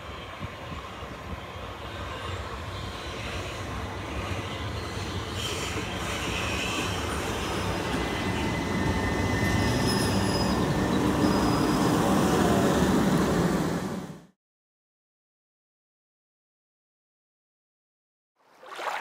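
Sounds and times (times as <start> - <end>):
train coaches rumbling past: 0.0 - 14.3.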